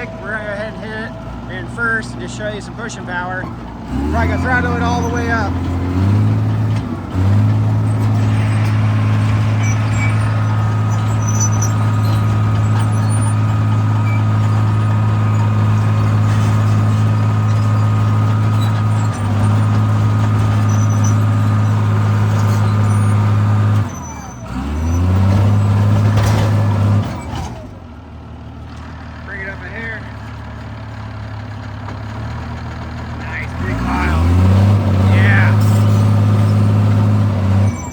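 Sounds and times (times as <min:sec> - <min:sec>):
faint engine whine: 0:00.0 - 0:15.4
bulldozer diesel engine droning: 0:00.0 - 0:37.9.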